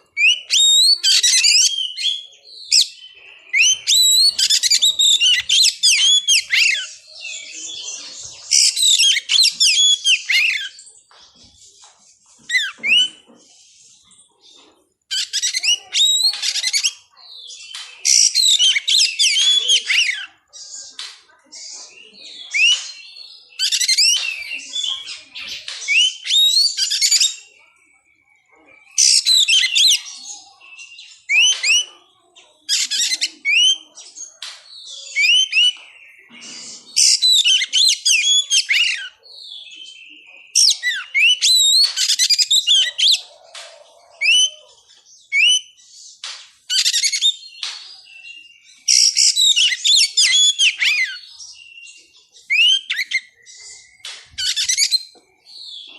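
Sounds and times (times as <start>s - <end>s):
bird singing whistles and chirps: 0.0s - 11.6s, 12.3s - 13.3s, 15.1s - 21.0s, 21.6s - 55.9s.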